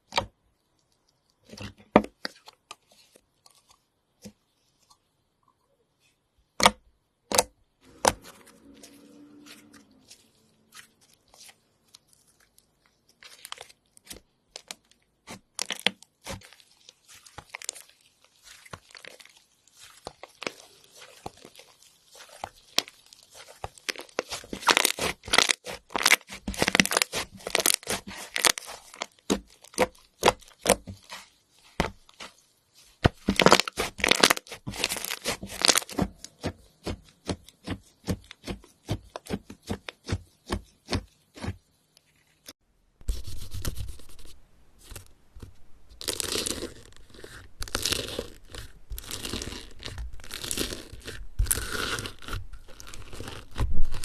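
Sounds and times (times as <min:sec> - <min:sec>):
slime crunching and tearing: 0:07.8 - 0:41.6, 0:46.0 - 0:54.0.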